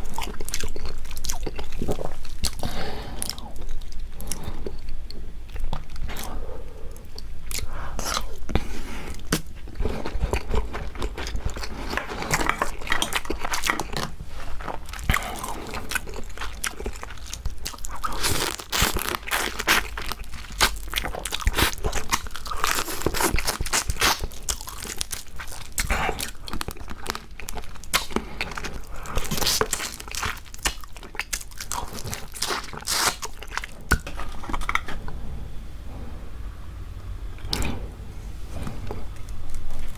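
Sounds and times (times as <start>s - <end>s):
chewing: 0.0s - 35.3s
crab shells crunching: 9.4s - 35.0s.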